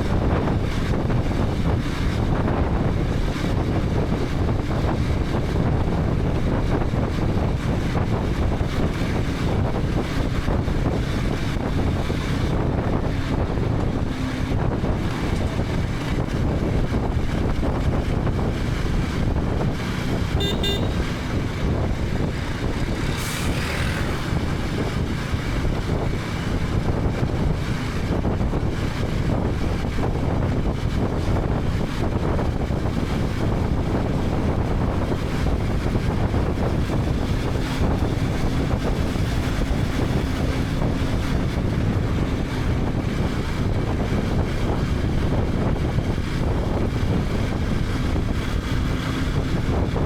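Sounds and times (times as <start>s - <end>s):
motorcycle engine running: 0.0s - 50.0s
road noise: 0.0s - 50.0s
wind rush on microphone: 0.0s - 50.0s
short high-pitched beep: 20.4s - 21.1s.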